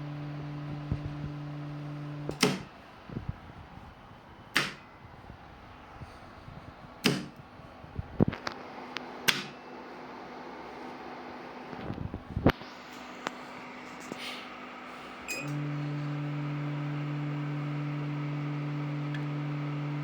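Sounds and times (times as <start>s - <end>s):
low electrical hum: 0.0s - 20.0s
loud sharp clicks: 2.3s - 2.8s, 4.5s - 4.8s, 7.0s - 7.4s, 9.2s - 9.6s.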